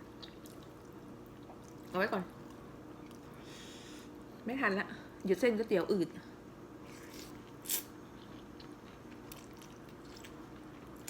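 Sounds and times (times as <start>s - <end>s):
person chewing food: 0.1s - 3.3s, 6.8s - 11.0s.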